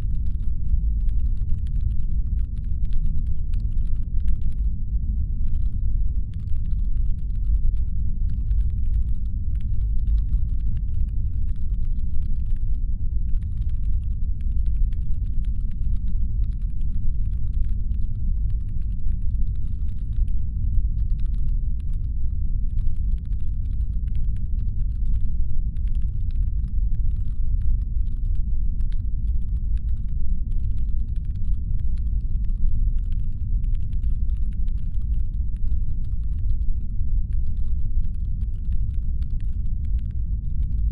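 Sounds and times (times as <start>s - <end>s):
rapid light clicking: 5.4s - 22.1s.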